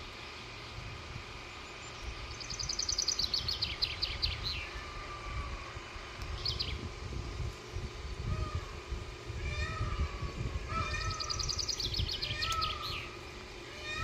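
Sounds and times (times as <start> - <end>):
songbird trilling: 1.6 - 5.3, 6.3 - 6.8, 9.4 - 14.0.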